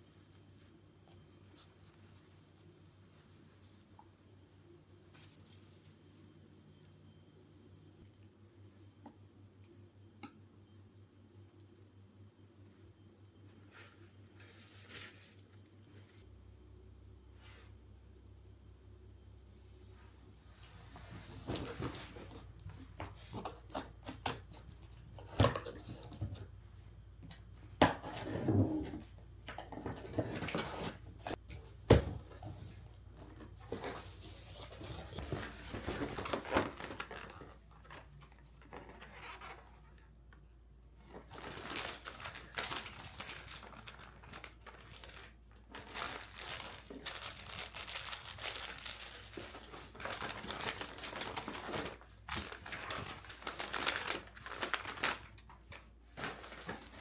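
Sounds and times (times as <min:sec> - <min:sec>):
rustling and crinkling: 0:13.4 - 0:16.3, 0:19.5 - 0:57.0.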